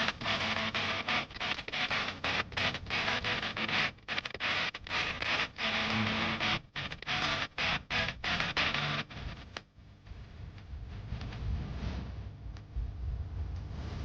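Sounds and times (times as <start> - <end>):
distorted electric guitar music: 0.0 - 9.6.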